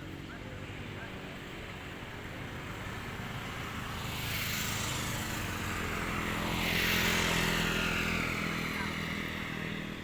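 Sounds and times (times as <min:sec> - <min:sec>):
vehicle approaching on road: 0:00.0 - 0:10.0.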